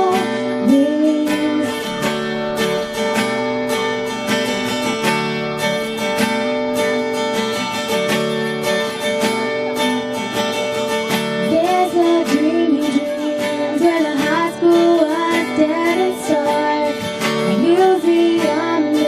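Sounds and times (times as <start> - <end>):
woman singing: 0.0 - 2.4, 11.4 - 19.0
strummed acoustic guitar: 0.0 - 19.0.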